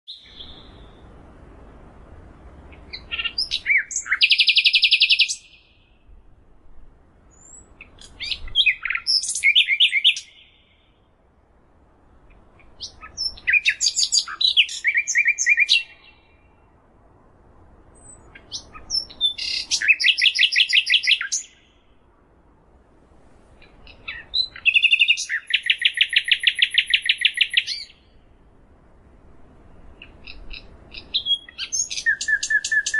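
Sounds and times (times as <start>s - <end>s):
songbird singing: 0.0s - 32.9s.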